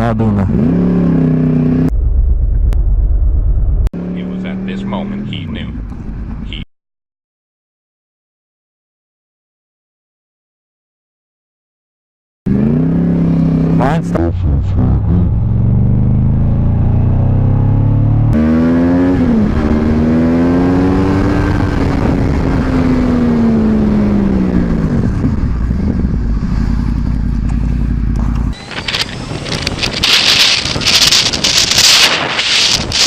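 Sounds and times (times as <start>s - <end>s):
motorcycle engine: 0.0s - 6.6s, 12.5s - 33.0s
wind buffeting microphone: 24.0s - 27.3s, 28.5s - 33.0s.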